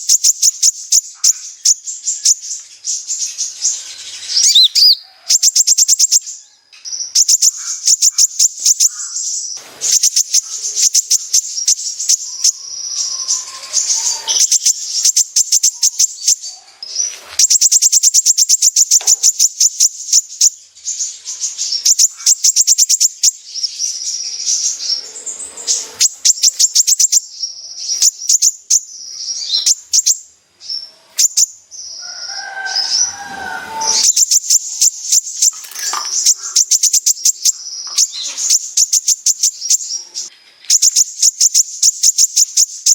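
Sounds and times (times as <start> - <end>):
sunbird singing rapid trills: 0.0 - 42.9.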